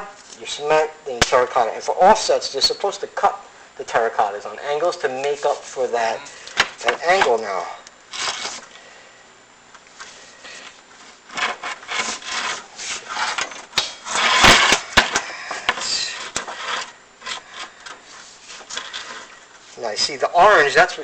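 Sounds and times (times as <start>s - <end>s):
camera scraping inside chimney: 7.3s - 8.8s, 10.0s - 14.9s, 15.5s - 20.8s.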